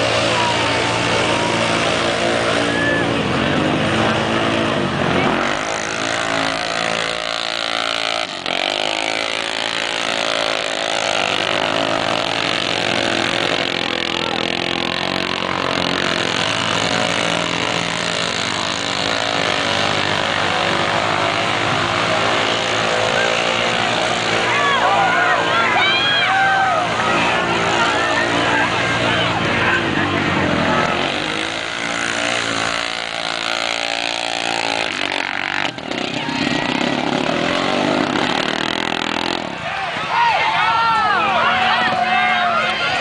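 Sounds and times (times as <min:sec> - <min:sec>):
engine running under load: 0:00.0 - 0:43.0.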